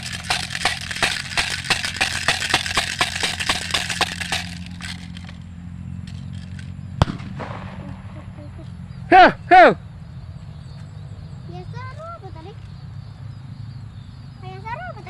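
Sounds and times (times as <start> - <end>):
rattle clattering: 0.0 - 7.6
sharp crack: 0.0 - 8.4
steady low hum: 0.0 - 15.0.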